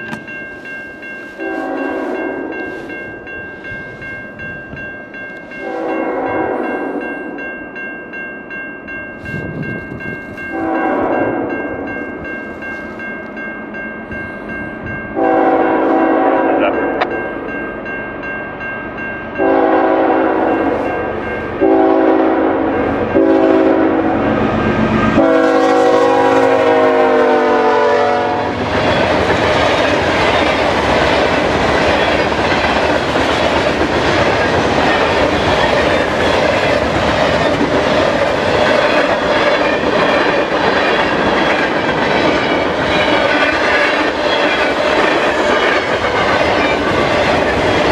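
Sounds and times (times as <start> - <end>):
locomotive horn blasts: 1.4 - 2.8, 5.6 - 7.0, 10.5 - 11.5, 15.2 - 17.1, 19.4 - 20.9, 21.6 - 24.2, 25.2 - 28.6
freight cars clickety-clack: 28.6 - 47.9.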